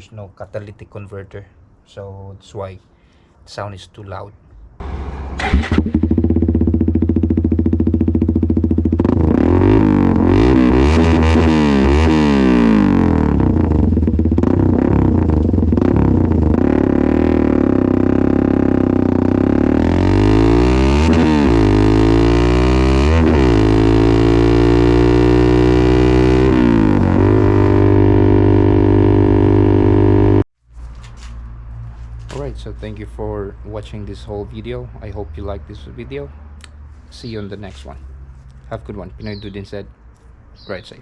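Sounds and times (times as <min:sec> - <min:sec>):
motorcycle engine revving: 0:04.8 - 0:30.5.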